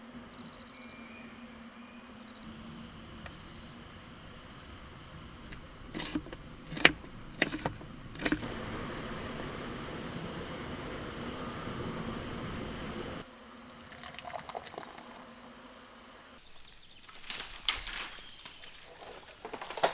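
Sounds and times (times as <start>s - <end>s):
insects trilling: 0.0s - 19.9s
loud steady hiss: 2.5s - 13.2s
sharp clicks and knocks: 5.4s - 9.3s.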